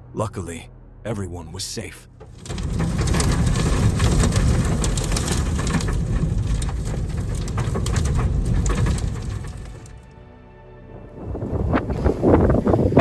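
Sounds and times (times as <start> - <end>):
sharp crackles and taps: 2.2 - 10.1
storm wind buffeting microphone: 2.4 - 10.1, 11.0 - 13.0.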